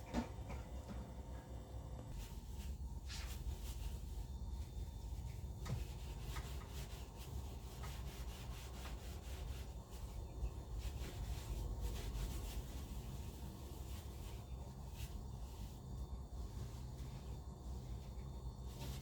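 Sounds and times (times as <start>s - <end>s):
low steady rumble: 0.0s - 19.0s
rubbing and scraping: 5.2s - 19.0s.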